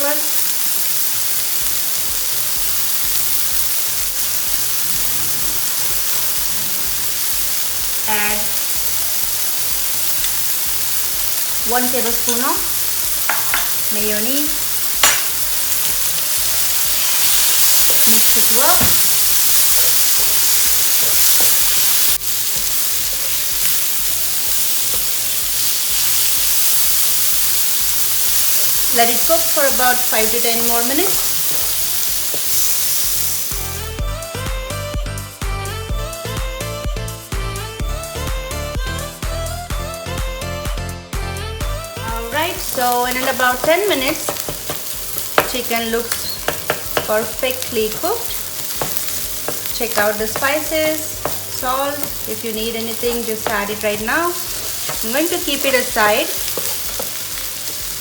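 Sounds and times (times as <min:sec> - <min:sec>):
chicken sizzling on a griddle: 0:00.0 - 0:34.0, 0:42.1 - 0:58.0
background music: 0:01.2 - 0:58.0
background music with soft beat: 0:30.5 - 0:58.0.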